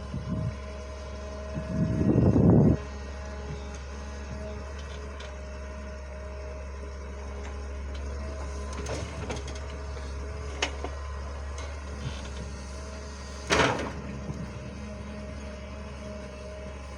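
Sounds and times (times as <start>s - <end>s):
machine humming and whining: 0.0s - 16.9s
loud clank: 13.5s - 14.1s.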